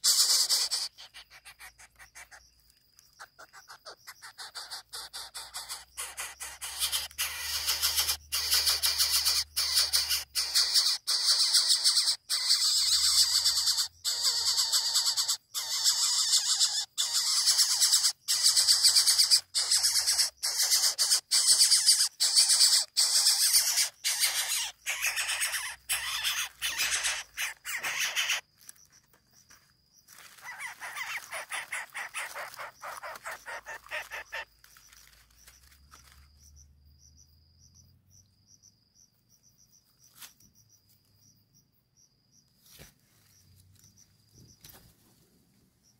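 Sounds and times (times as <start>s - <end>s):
harsh hissing bird begging calls: 0.0s - 2.4s, 3.5s - 28.4s, 30.4s - 34.5s
high insect trill: 0.0s - 45.0s.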